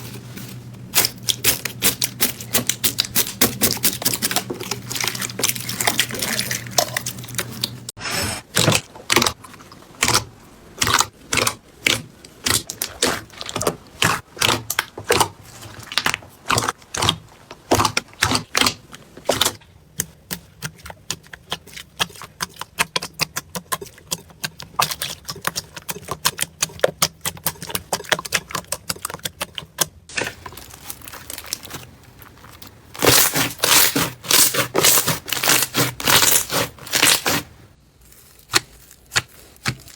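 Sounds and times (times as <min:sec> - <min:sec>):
slime squished by hand: 0:08.6 - 0:39.9.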